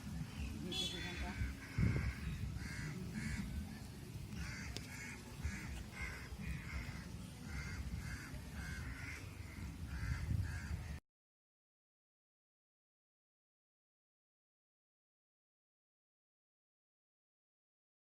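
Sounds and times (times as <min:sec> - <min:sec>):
crows cawing: 0:00.9 - 0:03.8, 0:04.4 - 0:11.0.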